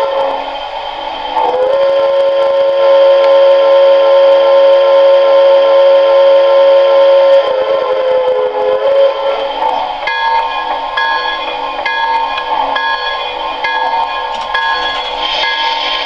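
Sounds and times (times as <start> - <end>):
steam locomotive whistle: 0.0 - 16.0
toy train clicking on track: 11.8 - 16.0.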